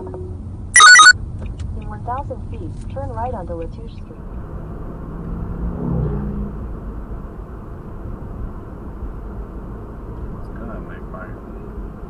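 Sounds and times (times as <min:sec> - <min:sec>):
car road and engine rumble: 0:00.0 - 0:12.0
short pitched sound: 0:00.8 - 0:01.1.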